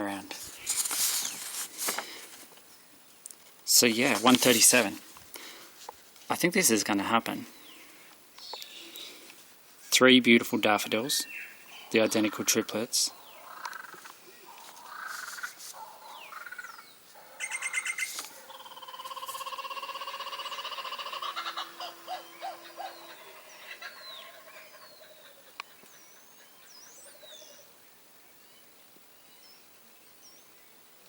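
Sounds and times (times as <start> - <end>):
thin whistled bird glides: 13.2 - 19.7, 20.4 - 27.7
harsh buzzing bird call: 17.4 - 25.0
rapid chattering bird notes: 17.4 - 26.0.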